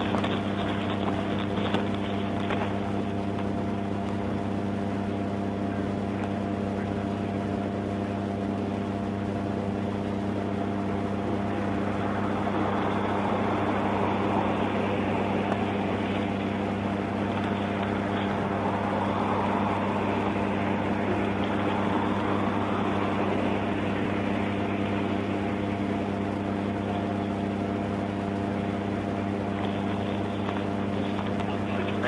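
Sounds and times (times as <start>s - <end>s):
vehicle engine idling: 0.0s - 7.6s, 9.2s - 32.0s.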